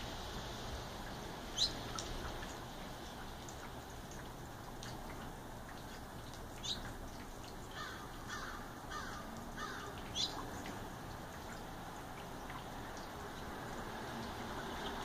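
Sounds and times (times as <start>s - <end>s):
faint background hiss: 0.0s - 15.0s
birds calling: 1.5s - 2.0s, 6.6s - 10.8s.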